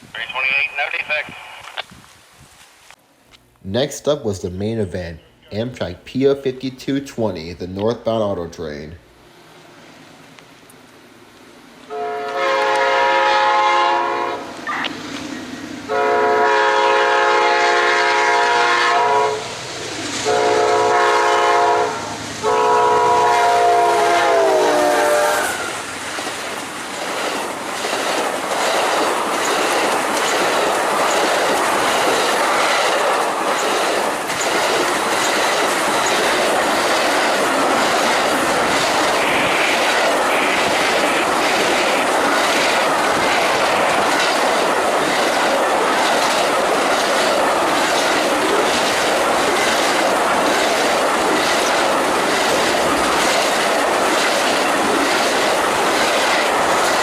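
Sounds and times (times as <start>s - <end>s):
train horn blasts: 11.9s - 14.4s, 15.9s - 19.5s, 20.2s - 25.8s
train wheels clacking over rail joints: 26.1s - 57.0s.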